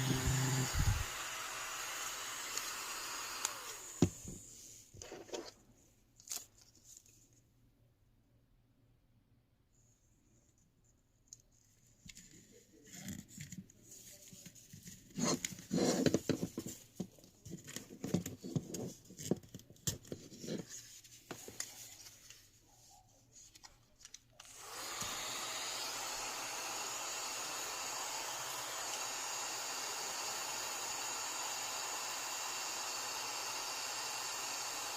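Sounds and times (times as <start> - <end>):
electric fan running: 0.0 - 4.2.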